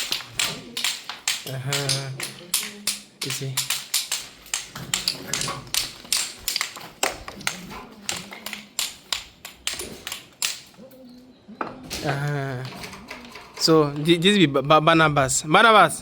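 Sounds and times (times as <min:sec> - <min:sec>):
hand tools tapping stone: 0:00.0 - 0:10.8.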